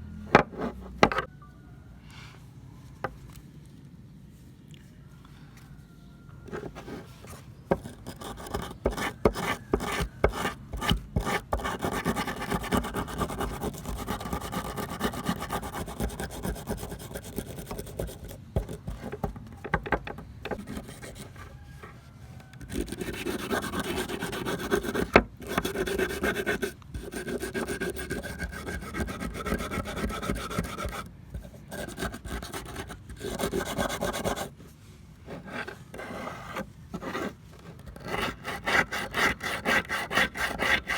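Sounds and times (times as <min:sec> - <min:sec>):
rasping abrasion on steel: 0:35.4 - 0:40.9.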